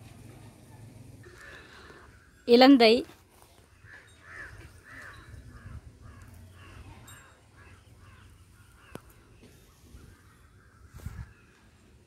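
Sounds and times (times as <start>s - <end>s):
bird calling: 3.8s - 11.8s.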